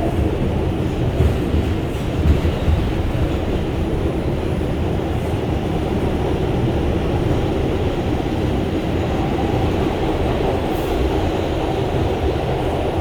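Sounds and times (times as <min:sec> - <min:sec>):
train knocks: 0:00.0 - 0:04.6
subway train wheels rumbling on rail: 0:00.0 - 0:13.0.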